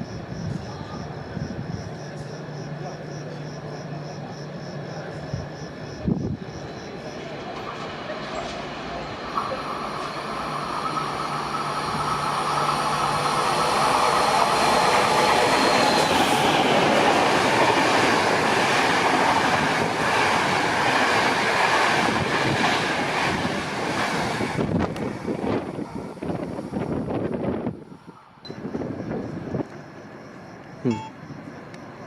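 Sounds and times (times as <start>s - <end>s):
train rumbling on rails: 0.0s - 32.0s
steady high tones: 30.8s - 31.2s.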